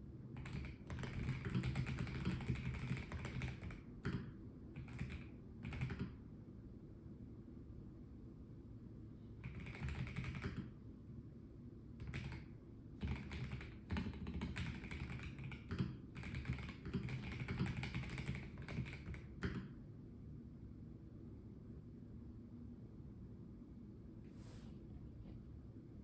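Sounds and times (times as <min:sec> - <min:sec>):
mechanical keyboard typing: 0:00.4 - 0:06.2, 0:09.4 - 0:10.7, 0:12.0 - 0:19.7.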